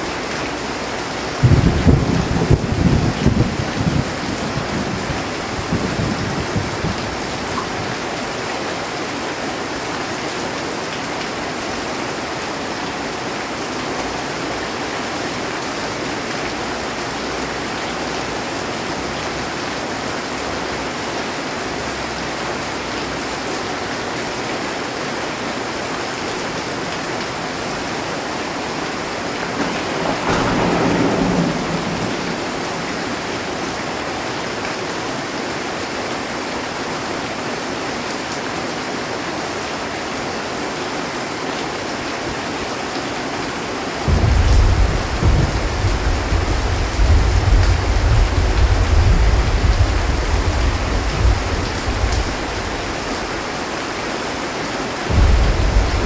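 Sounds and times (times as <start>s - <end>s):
rumble of thunder: 0.0s - 8.2s, 26.8s - 35.0s, 44.0s - 53.6s, 55.0s - 56.0s
heavy rain on a metal roof: 0.0s - 56.0s.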